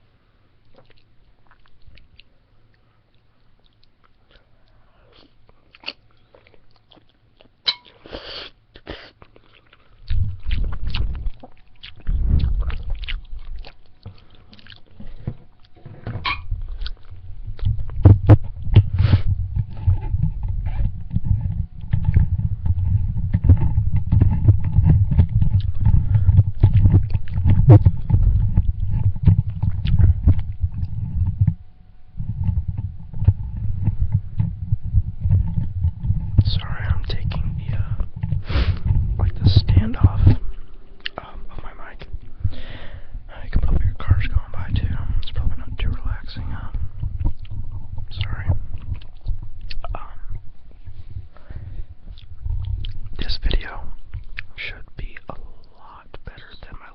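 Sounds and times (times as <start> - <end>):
chewing with wet clicks: 0.6 - 8.1, 8.7 - 15.8, 16.6 - 18.9, 19.6 - 31.6, 39.9 - 41.2, 46.7 - 50.0, 52.1 - 53.2, 54.0 - 56.0
low rumble: 10.0 - 56.9.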